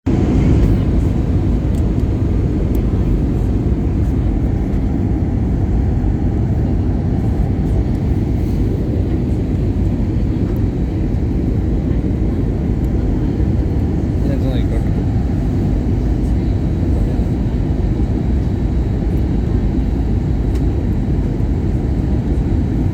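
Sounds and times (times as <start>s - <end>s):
airplane cabin engine rumble: 0.0s - 22.9s.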